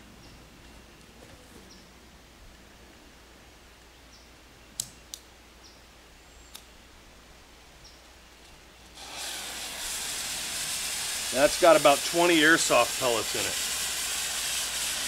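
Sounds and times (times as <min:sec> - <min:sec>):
sharp clicks: 0:04.8 - 0:05.3
fuse hissing: 0:08.9 - 0:15.0.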